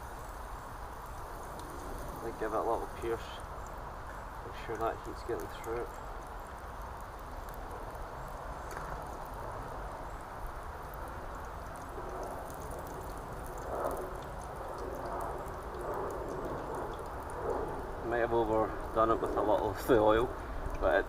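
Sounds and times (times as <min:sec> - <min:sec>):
sausages sizzling in oil: 0:00.0 - 0:21.0.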